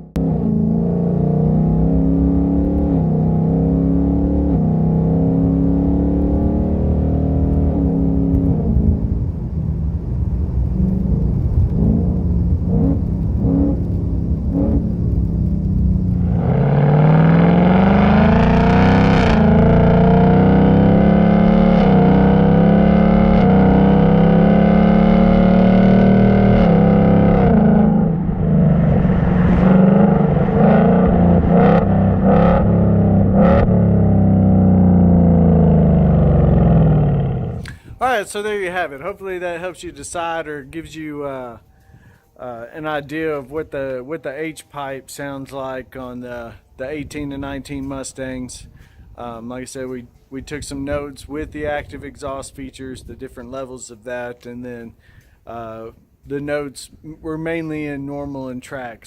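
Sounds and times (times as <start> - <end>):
car engine revving: 0.0 - 37.8
exhaust cracks: 0.0 - 42.0.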